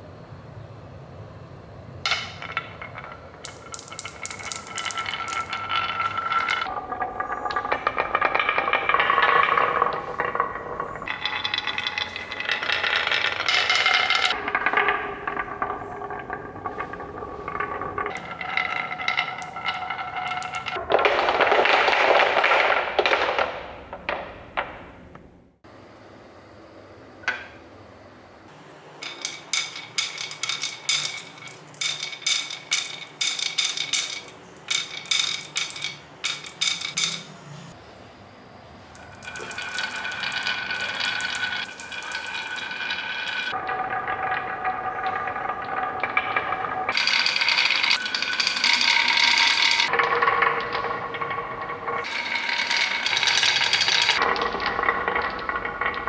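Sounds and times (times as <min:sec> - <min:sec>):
marble ringing roll: 0:02.0 - 0:24.7, 0:28.8 - 0:37.8, 0:38.9 - 0:56.0
marbles ringing clicks: 0:02.1 - 0:16.4, 0:17.6 - 0:23.5, 0:29.0 - 0:37.4, 0:38.9 - 0:51.4, 0:52.0 - 0:56.0
marbles rolling rush: 0:02.1 - 0:23.7, 0:28.9 - 0:37.4, 0:39.0 - 0:56.0.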